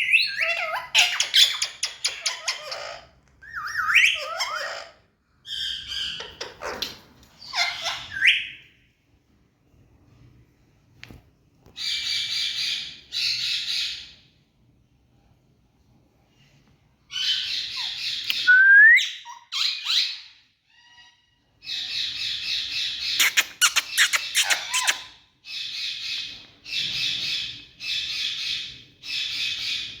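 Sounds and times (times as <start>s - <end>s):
parakeet squawking: 0.0s - 8.6s, 19.2s - 26.3s.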